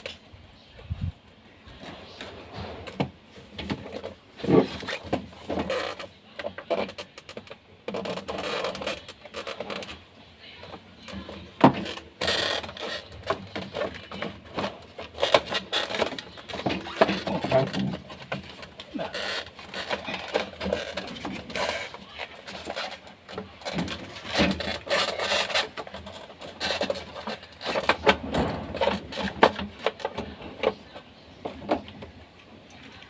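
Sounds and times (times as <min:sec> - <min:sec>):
panel clicking and scraping: 0:11.2 - 0:32.2.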